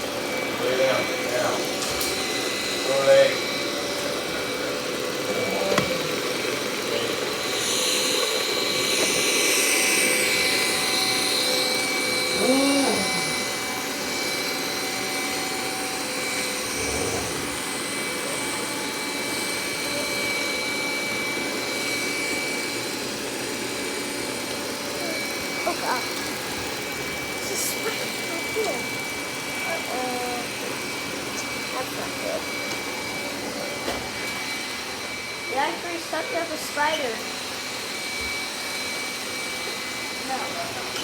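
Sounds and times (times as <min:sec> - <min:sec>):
robot vacuum cleaner whirring: 0:00.0 - 0:41.0.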